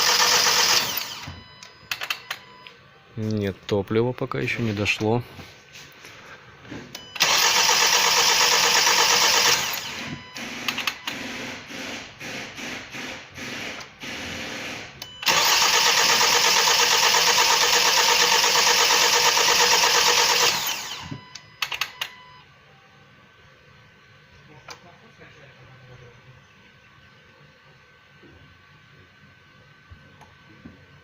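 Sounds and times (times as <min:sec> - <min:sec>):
starter cranking engine: 0:00.0 - 0:01.3, 0:07.0 - 0:11.2, 0:15.0 - 0:22.0
clicks: 0:01.6 - 0:03.4.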